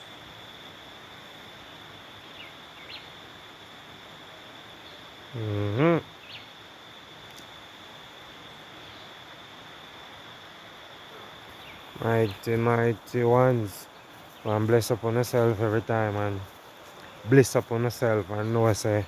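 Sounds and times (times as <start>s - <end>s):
high-pitched insect drone: 0.0s - 10.4s.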